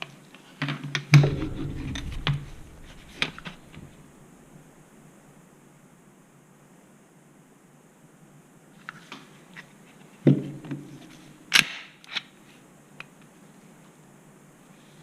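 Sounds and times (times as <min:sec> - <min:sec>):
loud dull clack: 0:01.2 - 0:04.8.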